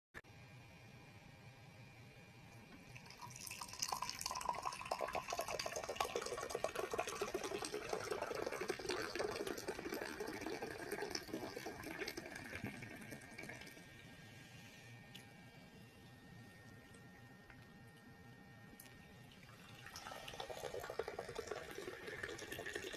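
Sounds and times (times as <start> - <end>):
tea pouring into a glass: 2.8 - 13.8, 19.4 - 22.9.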